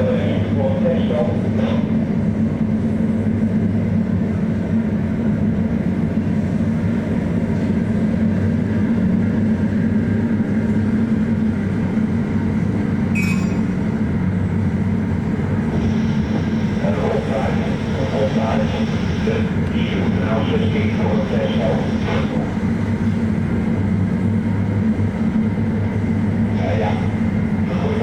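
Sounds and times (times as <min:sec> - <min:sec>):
ship engine drone: 0:00.0 - 0:28.0
sharp tick or beep: 0:13.2 - 0:13.9.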